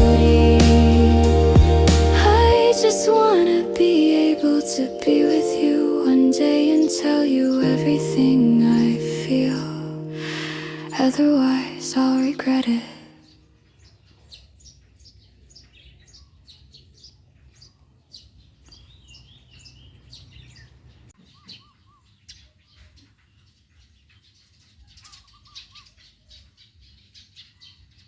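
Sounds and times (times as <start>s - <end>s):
lower bird notes: 0.0s - 13.4s
songbirds chirping: 2.3s - 28.0s.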